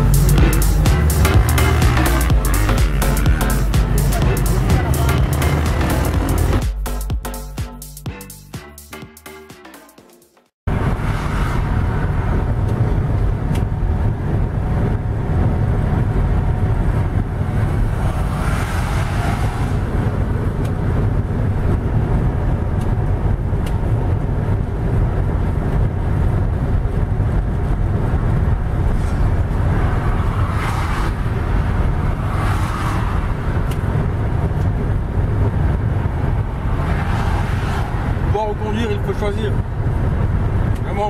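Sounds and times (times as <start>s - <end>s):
wind rumble on microphone: 10.7s - 41.0s.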